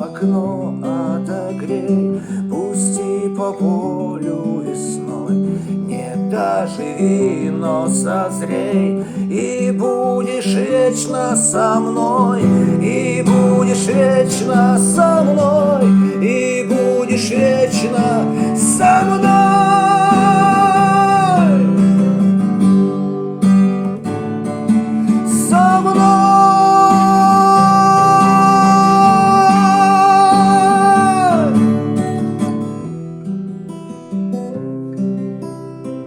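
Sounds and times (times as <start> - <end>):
acoustic guitar playing: 0.0 - 36.0
person singing wordless notes: 2.5 - 22.1, 25.0 - 31.8.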